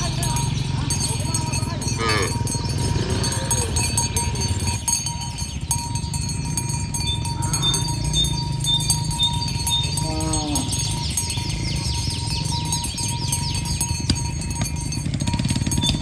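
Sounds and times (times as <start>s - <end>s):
cow mooing: 1.6s - 5.0s, 7.1s - 11.6s.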